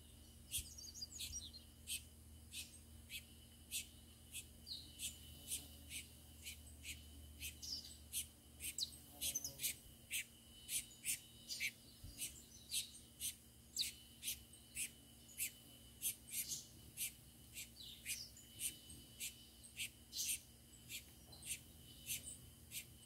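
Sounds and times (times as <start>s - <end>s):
birds chirping: 0.0s - 23.0s
faint steady high hum: 0.0s - 23.0s.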